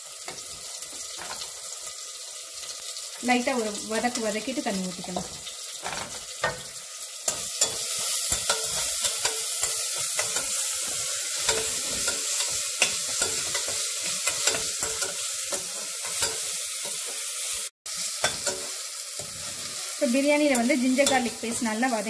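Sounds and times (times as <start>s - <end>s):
food sizzling in hot oil: 0.0s - 22.0s
spatula scraping a pan: 5.2s - 21.6s.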